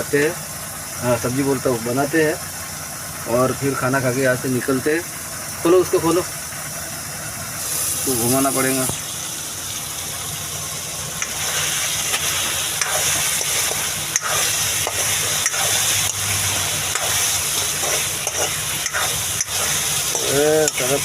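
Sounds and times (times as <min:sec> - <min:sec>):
vegetables sizzling in a pan: 0:06.7 - 0:21.0
spoon stirring and scraping: 0:12.8 - 0:21.0.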